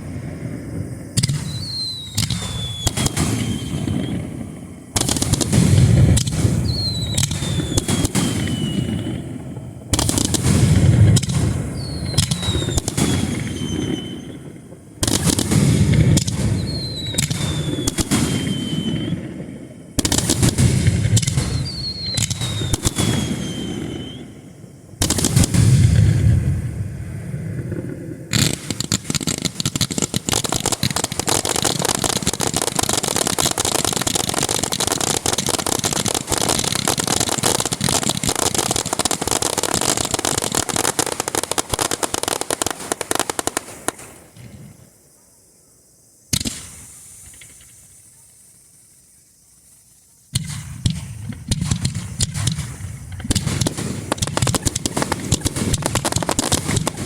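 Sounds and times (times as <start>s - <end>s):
firework bang: 0.0s - 44.8s, 50.4s - 57.0s
fireworks crackling bursts: 0.0s - 57.0s.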